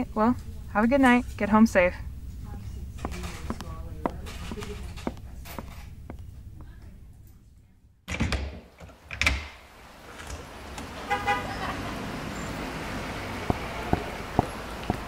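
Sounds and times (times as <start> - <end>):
steady traffic noise: 0.0 - 7.4, 9.7 - 15.0
footsteps: 2.2 - 6.9, 13.4 - 15.0.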